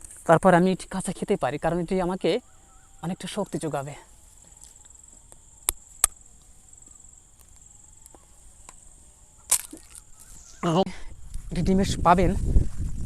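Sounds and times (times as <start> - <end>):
high-pitched insect drone: 0.4 - 11.9
sharp clicks: 4.6 - 6.5.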